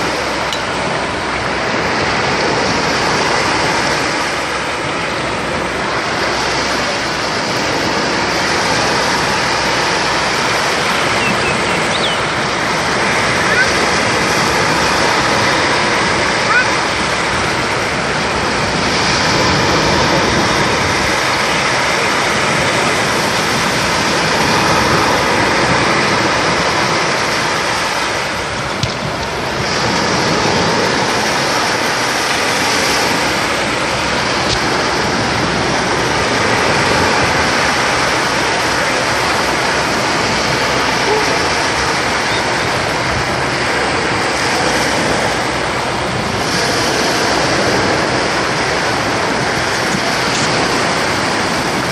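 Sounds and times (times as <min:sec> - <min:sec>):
sea waves breaking on beach: 0:00.0 - 0:51.9.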